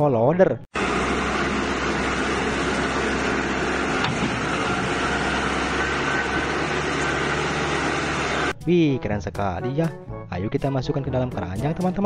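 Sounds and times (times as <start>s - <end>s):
diesel engine running: 0.7s - 8.6s.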